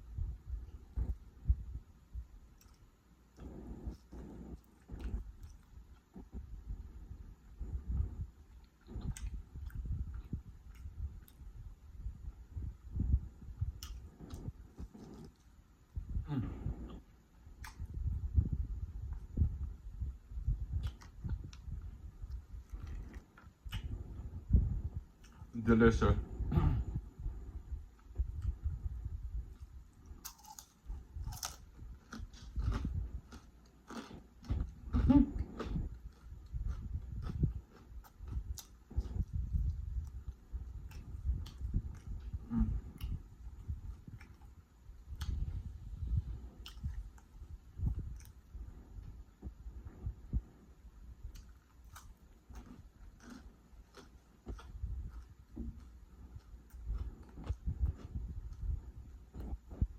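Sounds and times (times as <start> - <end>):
person chewing and crunching: 2.5 - 6.4, 8.4 - 11.4, 13.7 - 15.6, 16.4 - 18.1, 20.6 - 24.3, 29.4 - 45.5, 46.4 - 49.6, 51.2 - 59.9
wet mouth clicks: 17.6 - 18.0.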